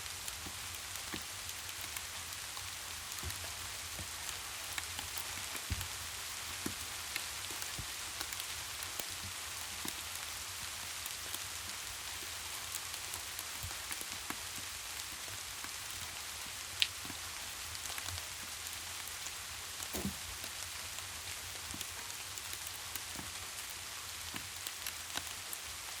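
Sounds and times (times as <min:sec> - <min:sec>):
steady rain hiss: 0:00.0 - 0:26.0
small ticks and pops: 0:00.3 - 0:11.4, 0:12.2 - 0:18.4, 0:21.6 - 0:23.4, 0:24.2 - 0:25.5.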